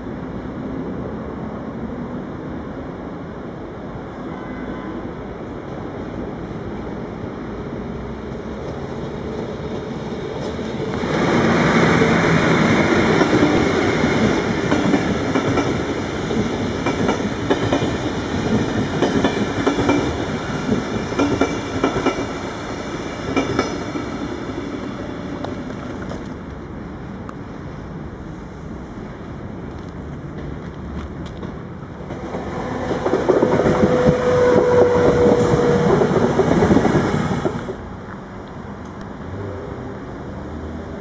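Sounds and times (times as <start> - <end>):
passenger train rumble: 0.0 - 41.0
wheels clacking over rail joints: 9.8 - 26.6.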